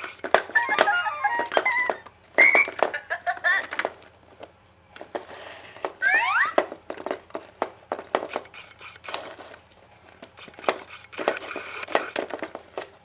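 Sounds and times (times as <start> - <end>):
short whistle-like tones: 10.4 - 12.2.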